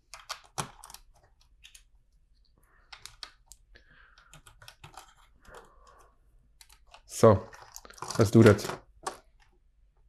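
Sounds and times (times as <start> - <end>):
small plastic pieces clicking: 0.0 - 1.9.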